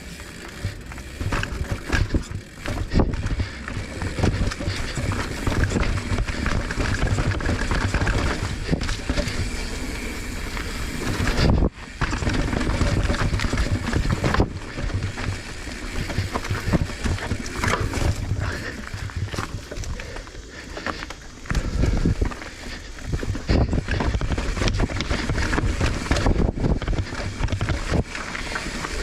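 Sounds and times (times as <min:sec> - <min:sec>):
bike rattling knocks: 0:00.0 - 0:29.0
tyres rolling over dirt and rock: 0:00.0 - 0:29.0
wind rushing over microphone: 0:23.0 - 0:28.2.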